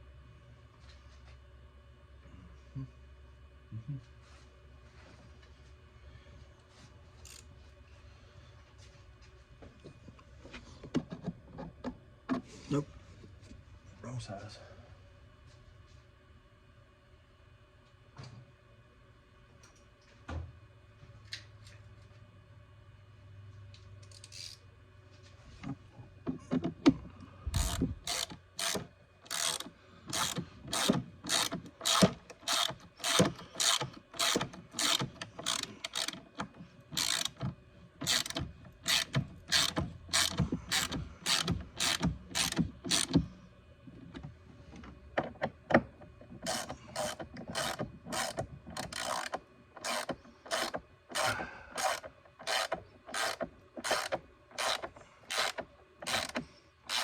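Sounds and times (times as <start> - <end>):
ratchet wrench clicking: 24.1 - 24.6, 27.6 - 36.2, 37.0 - 37.4, 38.0 - 43.2, 46.4 - 57.0.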